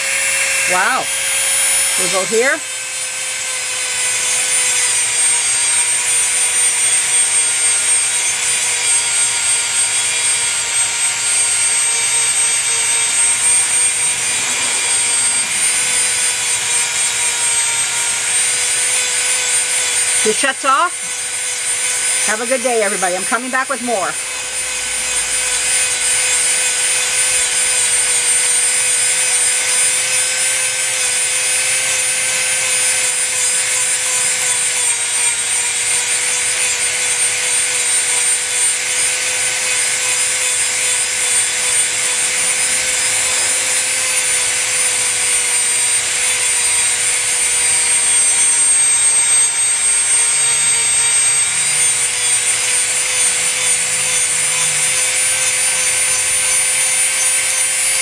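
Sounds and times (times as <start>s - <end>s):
rotary tool grinding whine: 0.0s - 58.0s.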